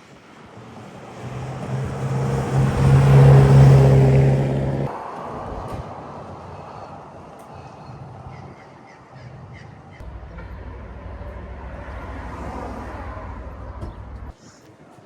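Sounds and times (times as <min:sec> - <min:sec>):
outdoor background noise: 0:00.0 - 0:15.0
vehicle engine rumbling: 0:00.6 - 0:05.9, 0:10.0 - 0:14.4.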